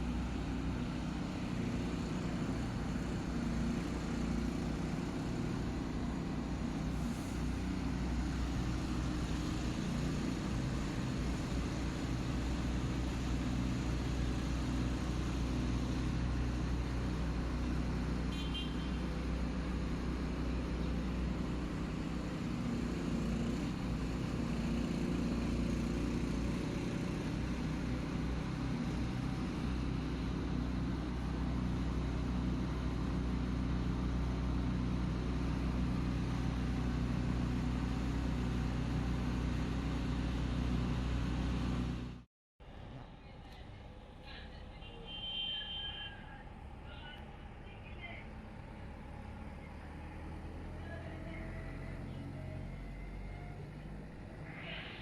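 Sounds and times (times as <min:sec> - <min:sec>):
road traffic noise: 0:00.0 - 0:55.0
vehicle engine drone: 0:00.0 - 0:55.0.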